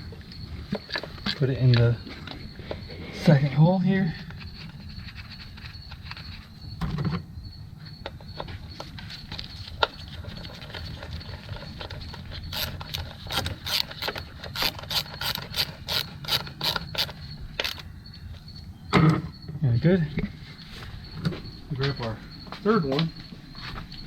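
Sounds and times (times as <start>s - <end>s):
hand ratchet clicking: 12.4s - 17.8s.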